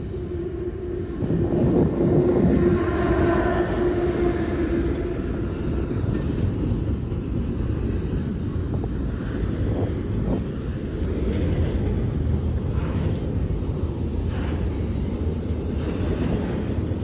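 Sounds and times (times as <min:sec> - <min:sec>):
diesel locomotive whine: 0:00.0 - 0:17.0
rail cars rumbling past: 0:00.0 - 0:17.0.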